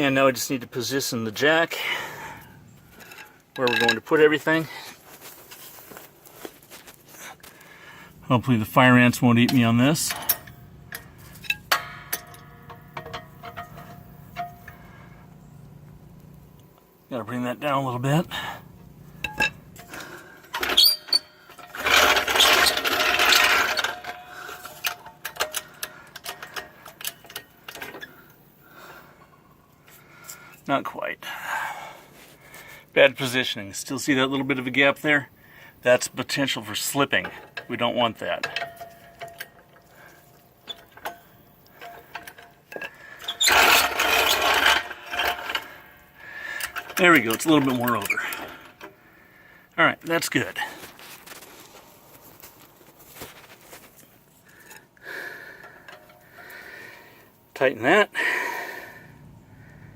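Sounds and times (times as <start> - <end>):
light clicks and clanks: 2.9 - 4.8, 9.4 - 16.9, 19.2 - 30.7, 36.1 - 45.8, 55.6 - 56.8
metal jack scraping rattle: 2.9 - 6.1, 8.3 - 15.2, 19.2 - 30.6, 36.2 - 49.0
metal jack clicking and knocking: 9.5 - 14.8.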